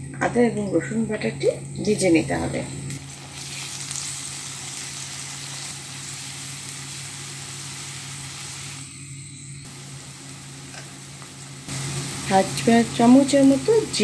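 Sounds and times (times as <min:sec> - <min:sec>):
vegetables sizzling in hot oil: 0:02.9 - 0:14.0.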